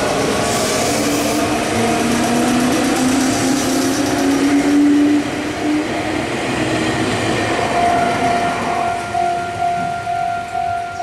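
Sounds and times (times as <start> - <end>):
train wheels rumbling on rails: 0.0 - 11.0
level crossing alarm ringing: 7.6 - 11.0.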